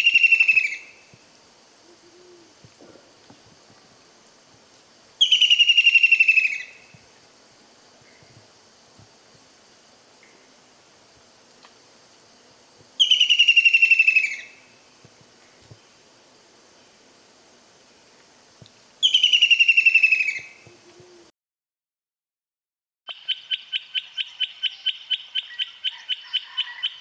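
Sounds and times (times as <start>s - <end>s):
bird trilling call: 5.2s - 6.8s, 13.0s - 14.6s, 19.0s - 20.6s.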